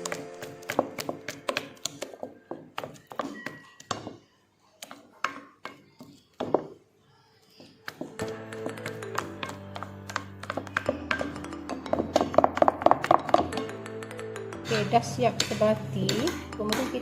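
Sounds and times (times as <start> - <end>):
spoon knocking against a mixing bowl: 7.9 - 17.0.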